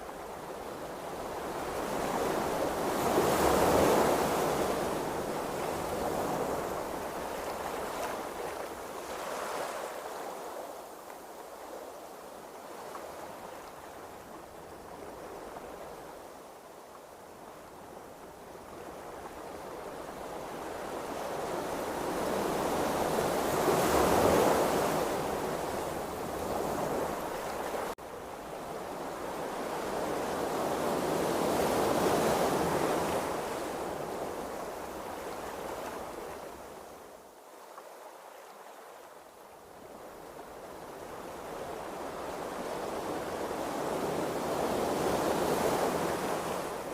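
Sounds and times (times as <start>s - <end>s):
ocean waves washing: 39.8s - 46.9s.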